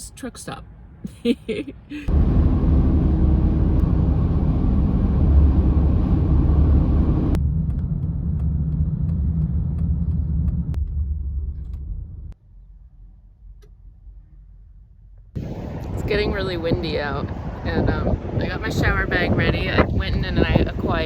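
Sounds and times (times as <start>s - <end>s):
car driving rumble: 1.1s - 12.4s.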